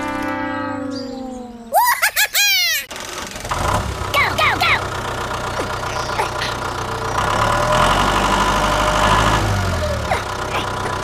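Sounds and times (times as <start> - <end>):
tractor engine idling: 2.9 - 11.0.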